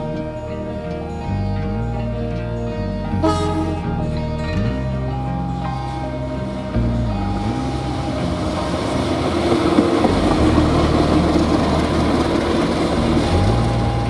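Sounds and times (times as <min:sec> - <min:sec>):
faint background music: 0:00.0 - 0:14.0
diesel train passing: 0:03.2 - 0:14.0.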